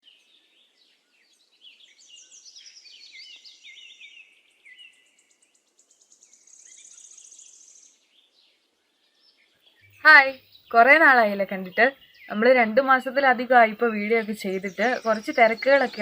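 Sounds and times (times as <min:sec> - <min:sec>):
birds chirping: 0:00.0 - 0:16.0
high bird trill: 0:09.7 - 0:16.0.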